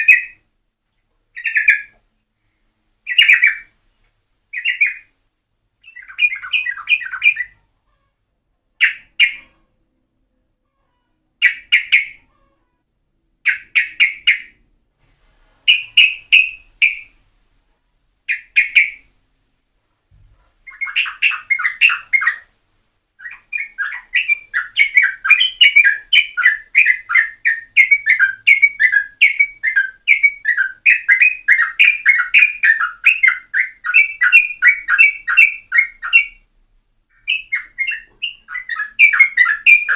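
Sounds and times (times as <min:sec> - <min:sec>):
bird singing chattering song: 0:00.0 - 0:00.4, 0:01.4 - 0:02.0, 0:03.1 - 0:03.7, 0:04.5 - 0:05.1, 0:05.8 - 0:07.6, 0:08.8 - 0:09.5, 0:11.4 - 0:12.3, 0:13.4 - 0:14.6, 0:15.7 - 0:17.2, 0:18.3 - 0:19.1, 0:20.6 - 0:22.5, 0:23.2 - 0:36.5, 0:37.1 - 0:39.9.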